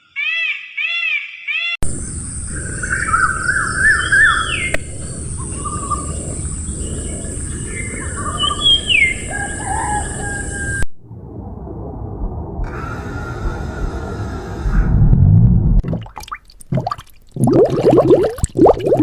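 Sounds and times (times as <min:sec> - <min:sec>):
birds singing and chirping: 0:00.2 - 0:10.8.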